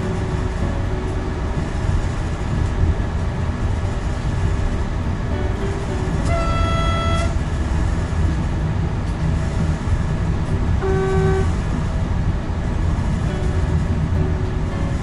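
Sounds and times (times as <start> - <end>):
electric train rumbling at speed: 0.0 - 15.0
short signal tones: 6.1 - 7.4, 10.8 - 11.6.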